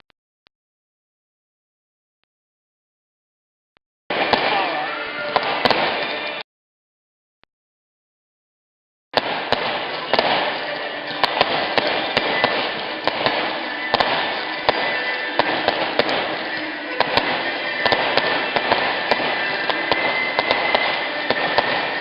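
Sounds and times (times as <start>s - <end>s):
fireworks fizzing with hiss: 9.2s - 22.0s.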